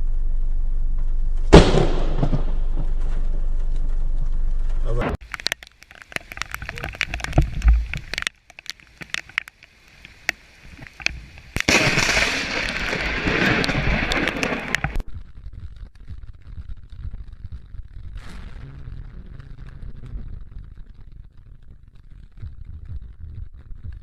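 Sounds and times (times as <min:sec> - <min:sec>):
rushing thunder rumble: 0:11.6 - 0:23.2
thunder cracks: 0:11.7 - 0:15.3.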